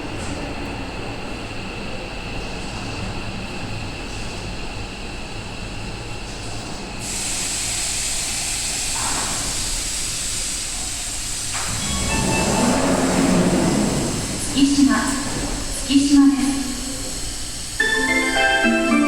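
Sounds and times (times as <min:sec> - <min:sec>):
train running and wheel noise: 0:00.0 - 0:19.0
loud air hiss: 0:07.0 - 0:19.0.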